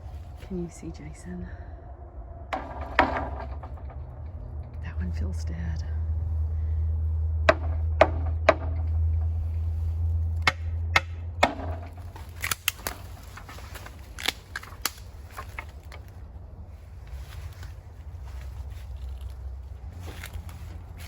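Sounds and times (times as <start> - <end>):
low rumble: 0.0 - 21.0
knocks on bamboo stalk: 10.4 - 11.9
light clicks and snaps: 12.2 - 13.1, 14.1 - 16.0.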